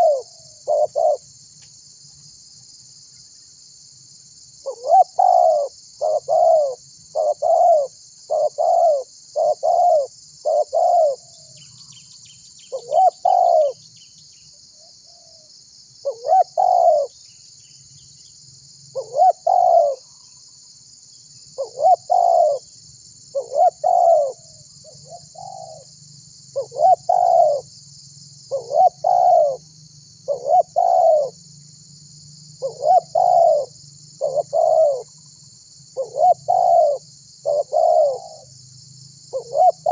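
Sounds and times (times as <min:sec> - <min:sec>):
dove cooing: 0:00.0 - 0:01.3, 0:04.6 - 0:11.4, 0:12.7 - 0:13.8, 0:16.0 - 0:17.1, 0:19.0 - 0:20.1, 0:21.6 - 0:22.7, 0:23.3 - 0:25.9, 0:26.6 - 0:27.7, 0:28.5 - 0:29.6, 0:30.3 - 0:31.4, 0:32.6 - 0:35.2, 0:36.0 - 0:38.5, 0:39.3 - 0:39.9.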